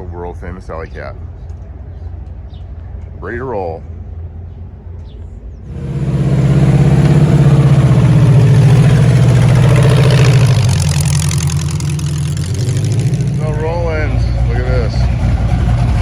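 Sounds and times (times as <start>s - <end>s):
hot-rod engine running: 5.7s - 16.0s
low engine rumble: 5.7s - 16.0s.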